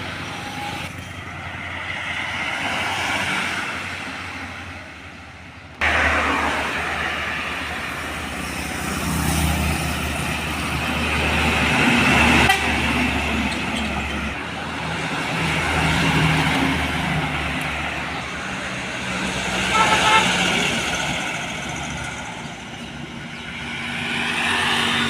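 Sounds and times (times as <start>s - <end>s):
trucks and buses passing: 0.0s - 25.0s
vehicle horns tooting: 12.3s - 13.0s, 19.6s - 20.6s.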